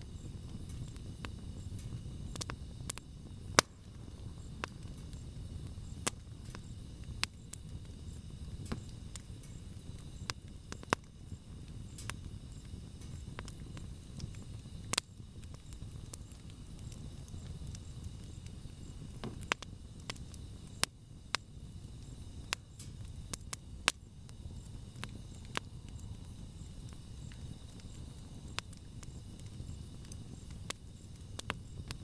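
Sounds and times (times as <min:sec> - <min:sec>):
campfire crackling and popping: 0:00.0 - 0:32.0.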